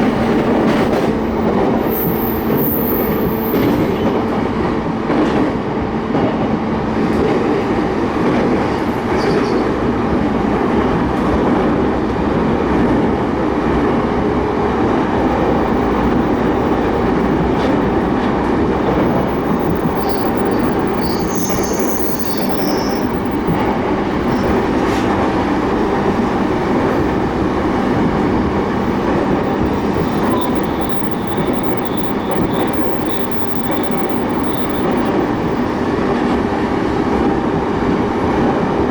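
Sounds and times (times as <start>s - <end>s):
train wheels rumbling on rail: 0.0s - 38.9s
high-pitched wheel squeals: 1.8s - 4.1s, 18.8s - 24.7s, 28.5s - 35.6s.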